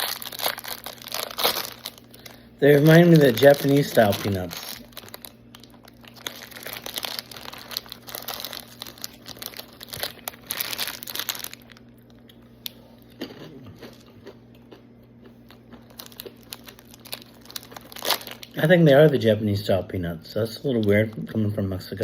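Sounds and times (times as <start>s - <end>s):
plastic packaging crinkling: 0.0s - 12.4s, 15.5s - 19.2s
crunching peanuts: 0.0s - 19.3s
steady low hum: 0.0s - 22.0s.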